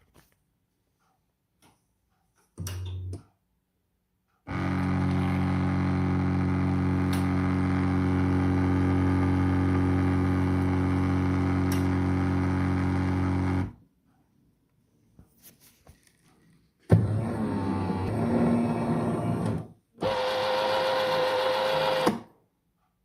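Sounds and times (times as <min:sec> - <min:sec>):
espresso machine pump buzzing: 0:04.5 - 0:13.7, 0:16.9 - 0:22.2.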